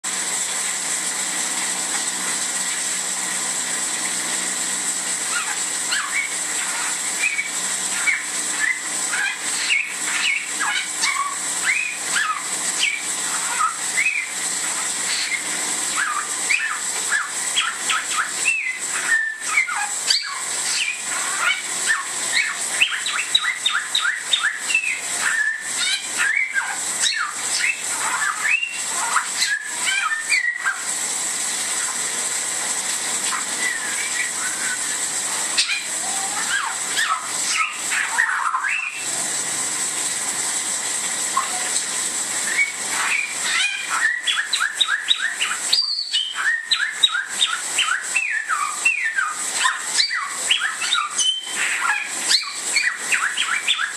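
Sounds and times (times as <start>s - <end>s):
steady hiss: 0.1s - 53.9s
bird whistling sharp notes: 5.3s - 14.3s, 16.0s - 30.8s, 42.5s - 53.9s.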